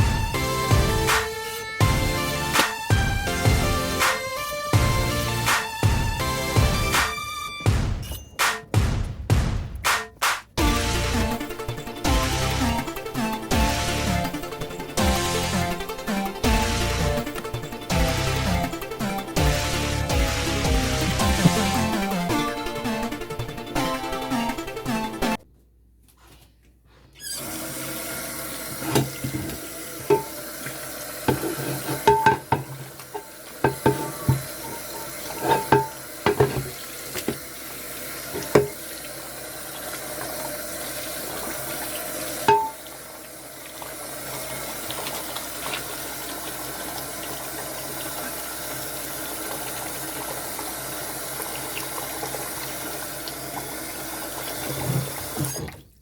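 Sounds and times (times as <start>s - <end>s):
tap water running into sink: 10.6s - 23.8s, 27.4s - 55.9s
hard items clinking in sink: 20.2s - 22.1s, 28.6s - 37.5s, 38.3s - 38.8s, 41.4s - 42.9s.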